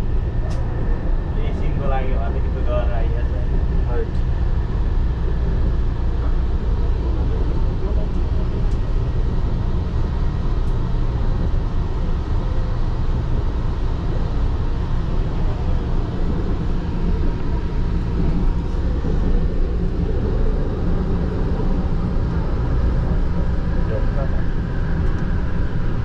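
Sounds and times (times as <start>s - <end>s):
faint whine: 0.0s - 26.0s
light-rail train rumble: 0.0s - 26.0s.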